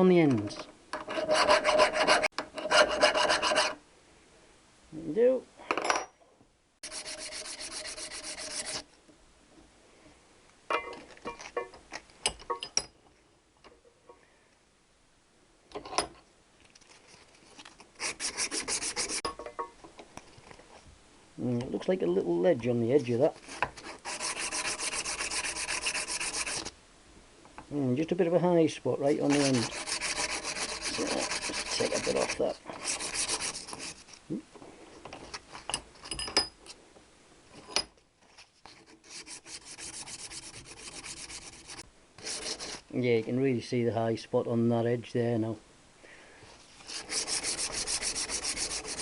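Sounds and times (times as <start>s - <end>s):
metal file scraping: 0.9s - 3.8s, 6.8s - 8.8s, 18.0s - 19.5s, 23.4s - 26.7s, 29.1s - 34.1s, 38.6s - 42.8s, 46.8s - 49.0s
hand rubbing on metal: 1.0s - 3.8s, 6.8s - 8.8s, 16.9s - 19.5s, 23.0s - 26.7s, 29.1s - 34.2s, 38.4s - 42.9s, 46.6s - 49.0s
metal scrape: 1.0s - 3.8s, 6.8s - 8.8s, 29.2s - 34.1s.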